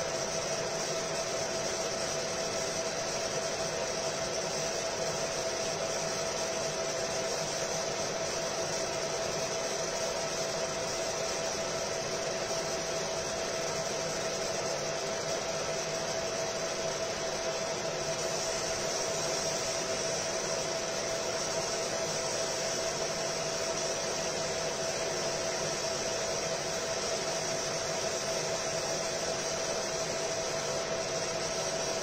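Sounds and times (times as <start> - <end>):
laser marking machine whirring: 0.0 - 32.0.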